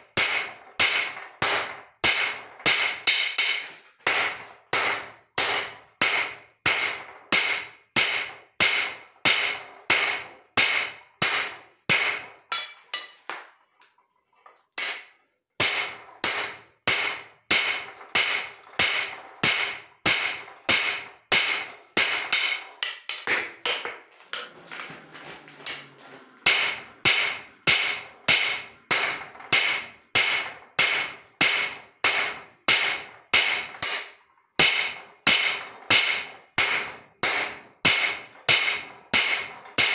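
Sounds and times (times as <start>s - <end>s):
hammer striking steel on anvil: 0.1s - 13.5s, 14.8s - 24.9s, 25.5s - 39.9s.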